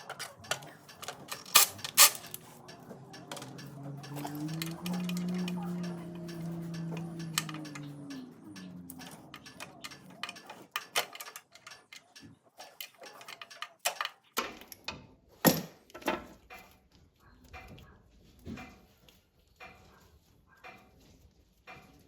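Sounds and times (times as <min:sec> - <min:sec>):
low steady hum: 0:00.0 - 0:10.6
sharp clicks and light knocks: 0:00.0 - 0:22.0.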